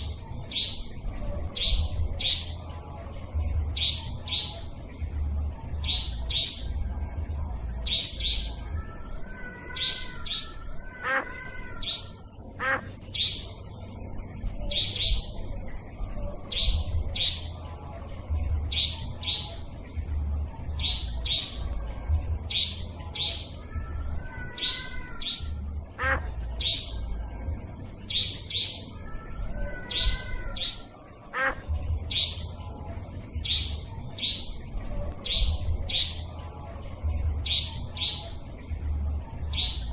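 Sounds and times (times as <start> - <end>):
nightjar calls: 0.0 - 2.7, 3.8 - 4.7, 5.8 - 6.8, 7.8 - 13.7, 14.7 - 15.5, 16.5 - 17.6, 18.7 - 19.7, 20.8 - 21.7, 22.5 - 27.1, 28.1 - 32.6, 33.4 - 36.4, 37.4 - 38.4, 39.5 - 39.9.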